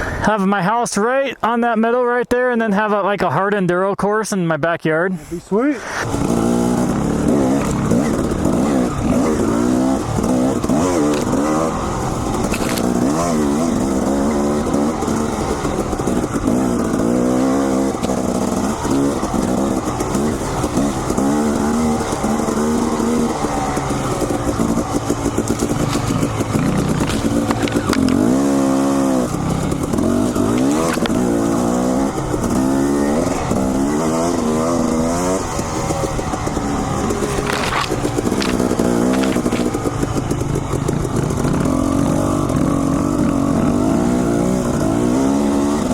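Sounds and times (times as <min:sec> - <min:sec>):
dirt bike engine revving: 0:05.8 - 0:45.9.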